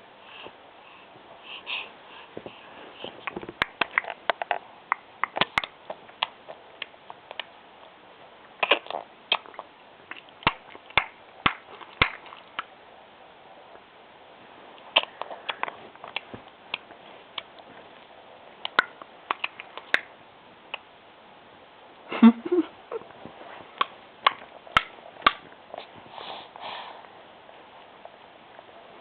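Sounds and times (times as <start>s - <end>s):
clicking and smacking mouth noises: 3.2s - 7.6s, 8.6s - 12.7s, 15.0s - 17.7s, 18.6s - 20.1s, 23.8s - 25.9s.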